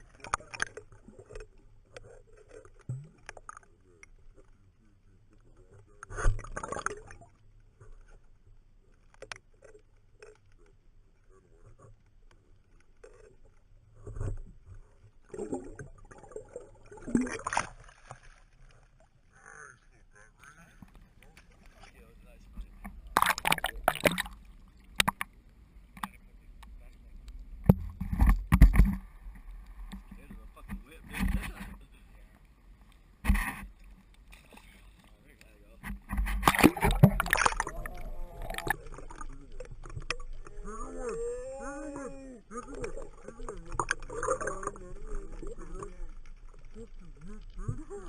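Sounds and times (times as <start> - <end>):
water splashing: 0.0 - 4.6, 5.5 - 8.1, 12.7 - 19.4, 20.3 - 48.0
faint ticks: 5.2 - 15.0.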